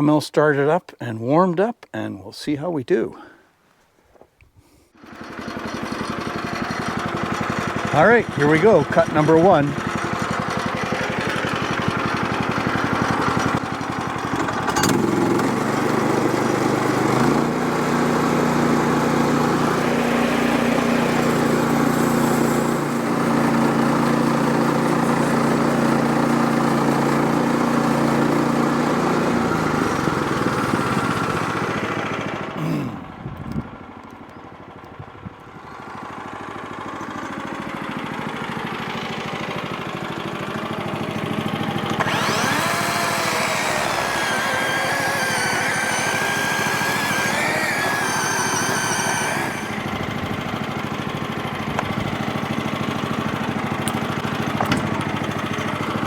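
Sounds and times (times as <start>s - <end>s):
gas engine running: 4.9s - 56.0s
band blade cutting log: 41.8s - 50.0s.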